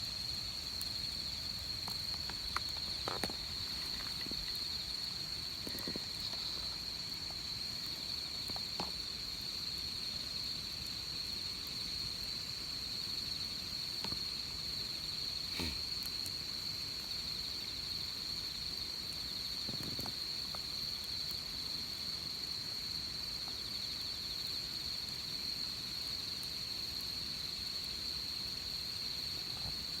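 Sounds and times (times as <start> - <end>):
insects chirring: 0.0 - 30.0
campfire pops and crackles: 0.6 - 9.8, 13.9 - 14.9, 19.6 - 21.3.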